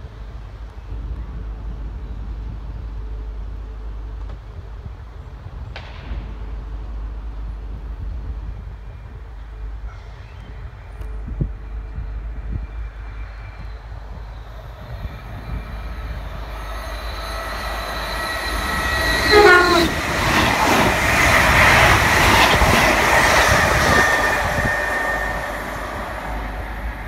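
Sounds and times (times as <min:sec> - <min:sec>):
train wheels rushing on rails: 0:00.0 - 0:27.0
train horn: 0:14.8 - 0:27.0.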